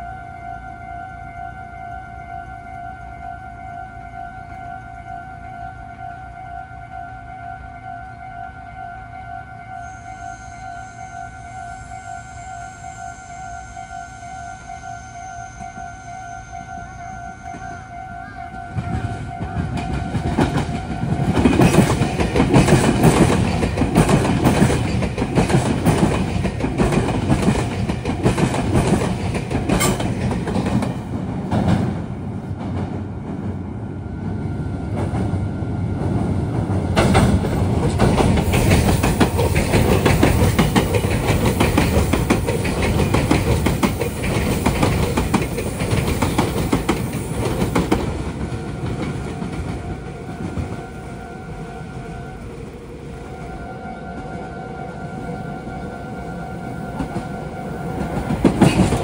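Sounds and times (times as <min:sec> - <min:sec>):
train wheels clattering over points: 0:18.8 - 0:32.0, 0:36.9 - 0:49.8, 0:58.0 - 0:59.0.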